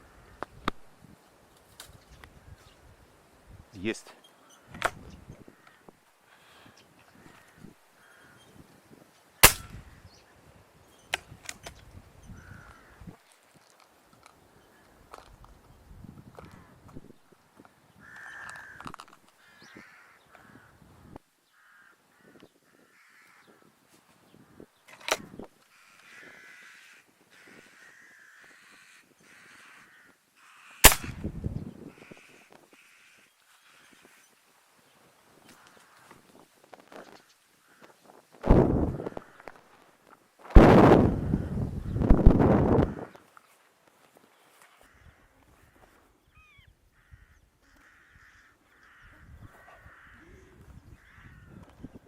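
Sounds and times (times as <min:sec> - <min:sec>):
crows cawing: 0:00.0 - 0:00.4, 0:04.4 - 0:08.6, 0:12.4 - 0:13.8, 0:14.6 - 0:15.3, 0:16.4 - 0:16.8, 0:18.0 - 0:20.8, 0:21.4 - 0:23.8, 0:24.4 - 0:31.1, 0:31.9 - 0:34.4, 0:35.4 - 0:36.2, 0:36.9 - 0:38.0, 0:42.7 - 0:43.3, 0:44.1 - 0:52.0
sharp cracks: 0:09.4 - 0:09.9, 0:30.8 - 0:31.3, 0:40.5 - 0:41.1.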